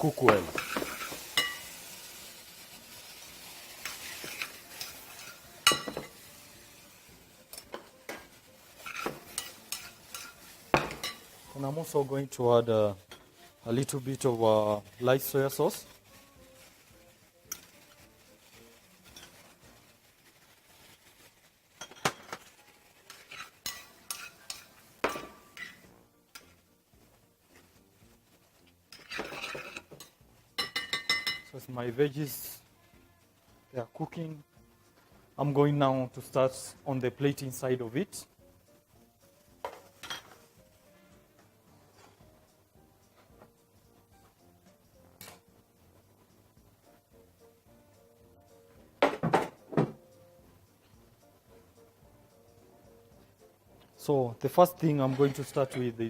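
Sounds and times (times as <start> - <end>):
vegetables sizzling in a pan: 0.0 - 49.0
utensil clinking on pan: 0.3 - 1.8, 3.8 - 6.3, 7.5 - 11.4, 23.1 - 25.8, 28.9 - 31.6.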